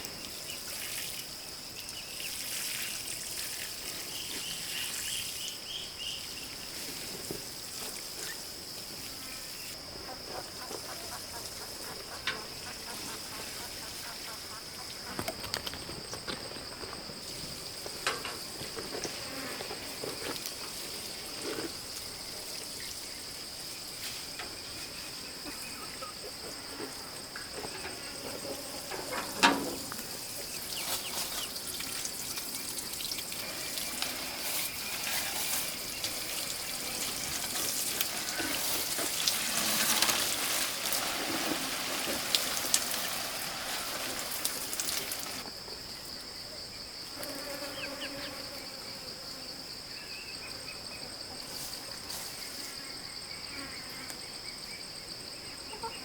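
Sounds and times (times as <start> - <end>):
insects chirring: 0.0 - 56.0
clicks and knocks: 28.9 - 30.0.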